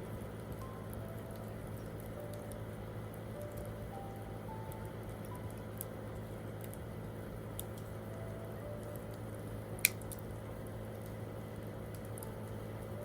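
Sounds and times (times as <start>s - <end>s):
soft piano notes: 0.0s - 9.7s, 11.9s - 13.0s
campfire crackling: 4.6s - 8.1s, 8.8s - 12.9s.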